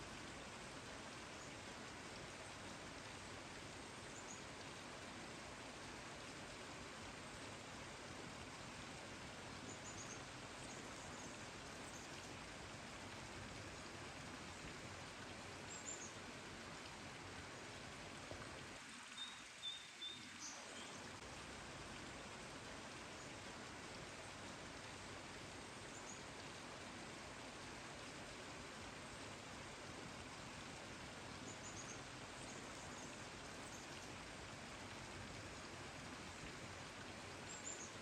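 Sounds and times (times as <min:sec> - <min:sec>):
steady rain hiss: 0:00.0 - 0:38.0
faint high bird chirps: 0:19.2 - 0:21.0.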